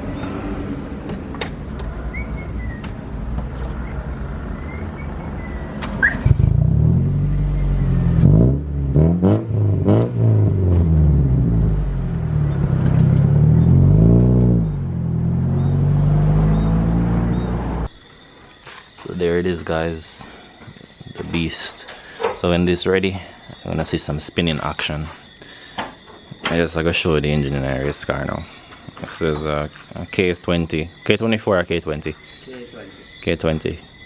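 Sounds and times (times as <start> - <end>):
race car engine revving: 6.0 - 17.9
low engine drone: 6.2 - 18.0.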